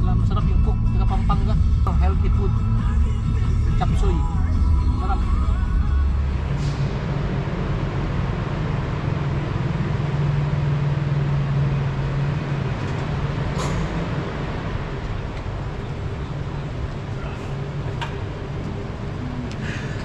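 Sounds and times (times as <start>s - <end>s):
rushing noise: 4.4s - 10.3s.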